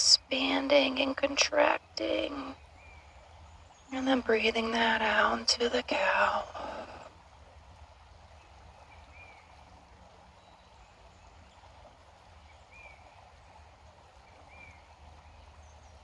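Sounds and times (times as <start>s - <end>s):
creek murmuring: 0.0s - 16.0s.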